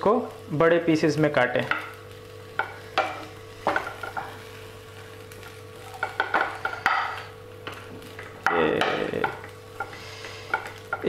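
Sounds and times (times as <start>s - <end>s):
vegetables sizzling in a pan: 0.0s - 11.0s
spatula scraping a pan: 9.7s - 11.0s.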